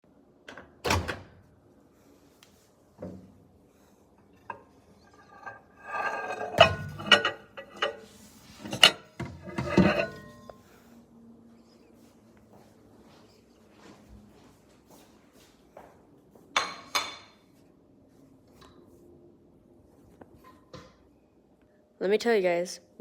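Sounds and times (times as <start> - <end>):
dishes clattering: 4.4 - 10.6.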